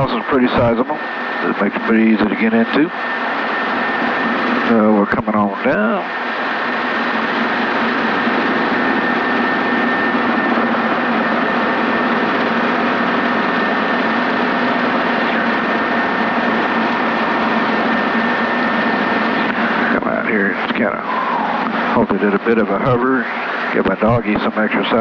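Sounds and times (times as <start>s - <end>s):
helicopter engine and rotor drone: 0.0s - 25.0s.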